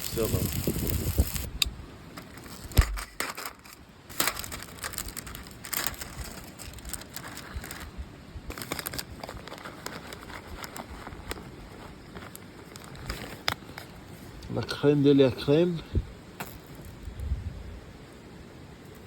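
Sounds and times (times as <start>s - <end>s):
crackling and crinkling clicks: 0.0s - 7.9s, 8.5s - 14.5s.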